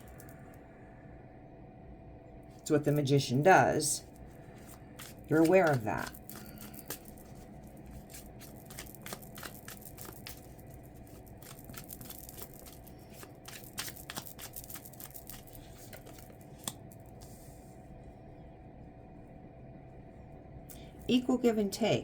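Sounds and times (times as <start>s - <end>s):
cards being shuffled: 4.1s - 17.4s.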